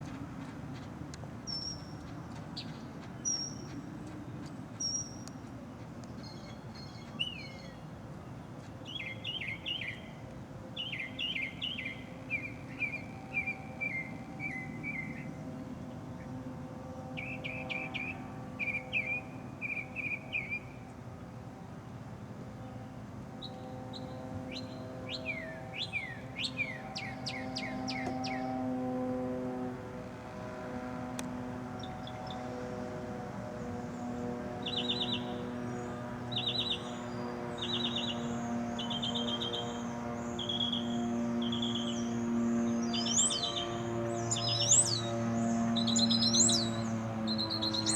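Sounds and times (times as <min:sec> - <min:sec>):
steady low hum: 0:00.0 - 0:47.9
droning motor-like tone: 0:09.3 - 0:47.9
small birds chirping: 0:34.6 - 0:47.9.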